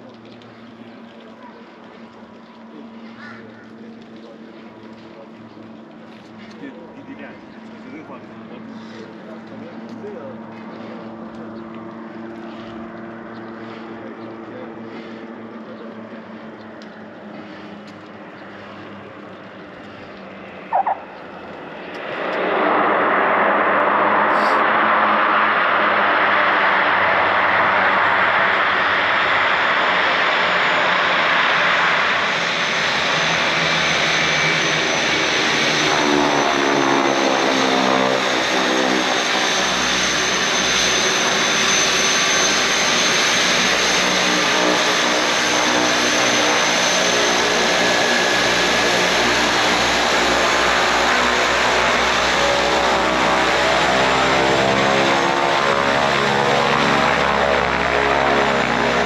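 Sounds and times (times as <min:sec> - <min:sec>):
turboprop engines roaring: 0:00.0 - 0:59.0
multi-tone whine: 0:15.6 - 0:24.4.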